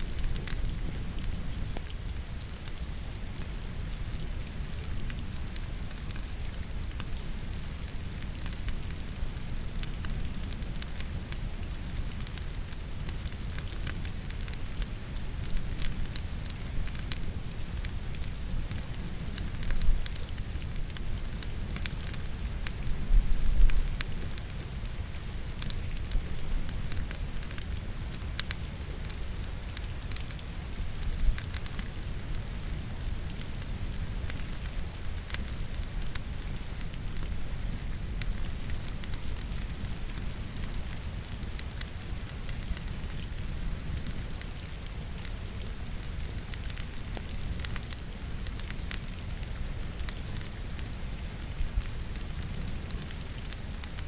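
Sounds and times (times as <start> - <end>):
fire crackling and popping: 0.0 - 54.0
steady rainfall: 0.0 - 54.0.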